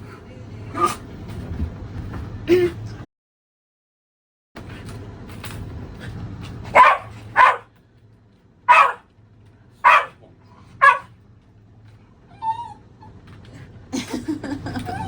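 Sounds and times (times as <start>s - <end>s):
dog barking: 6.7s - 7.7s, 8.7s - 9.1s, 9.8s - 10.2s, 10.8s - 11.1s.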